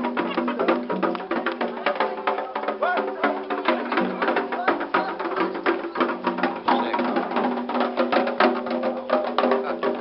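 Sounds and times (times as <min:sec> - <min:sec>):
drums: 0:00.0 - 0:10.0
wooden percussion: 0:00.0 - 0:10.0
voices singing: 0:00.4 - 0:08.3.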